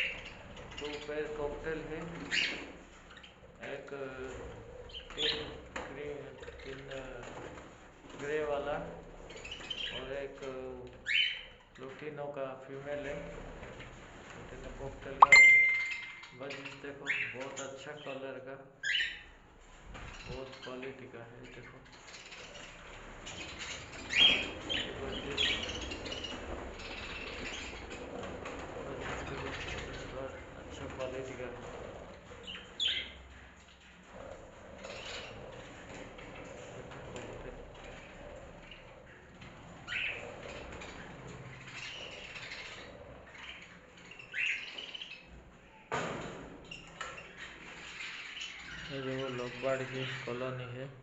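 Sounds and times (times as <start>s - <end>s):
loud sharp bird calls: 0.0s - 1.3s, 15.2s - 18.2s, 21.7s - 45.9s
parrots chirping: 15.2s - 17.4s, 21.9s - 28.6s, 32.4s - 33.9s, 34.8s - 36.5s, 37.8s - 45.9s, 46.6s - 50.3s.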